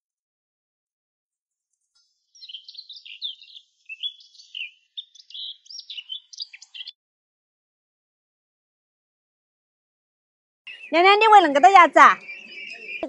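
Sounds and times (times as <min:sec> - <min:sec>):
songbird singing: 0:02.0 - 0:07.0, 0:10.7 - 0:13.0.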